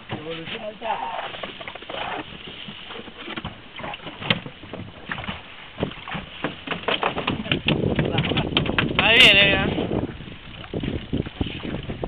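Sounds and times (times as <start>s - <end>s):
water lapping against hull: 0.0s - 12.0s
knocks and clicks: 5.2s - 9.2s.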